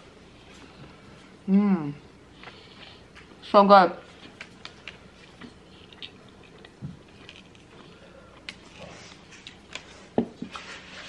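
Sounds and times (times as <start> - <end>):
person chewing with mouth clicks: 4.2 - 9.9.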